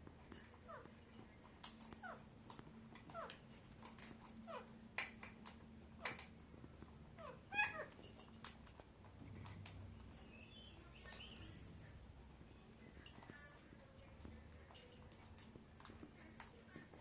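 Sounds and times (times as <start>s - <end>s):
parrot squeaky calls: 7.2s - 8.0s.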